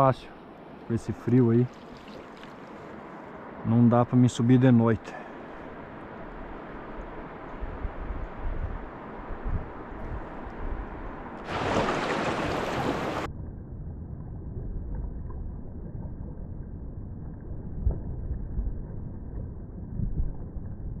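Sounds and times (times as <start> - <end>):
wind buffeting microphone: 5.9 - 13.3, 17.3 - 21.0.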